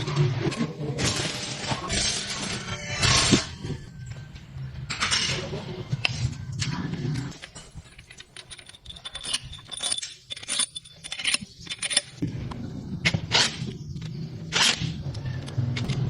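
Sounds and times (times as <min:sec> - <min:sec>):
metal tools clinking: 0:07.1 - 0:12.2.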